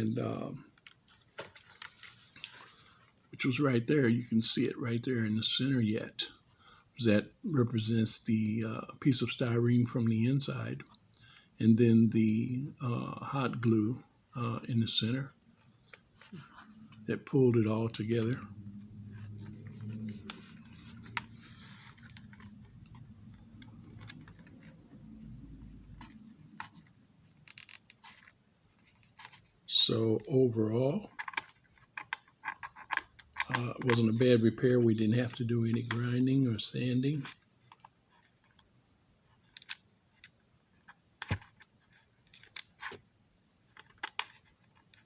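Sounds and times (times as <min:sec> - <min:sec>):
faint low hum: 0:00.0 - 0:45.0.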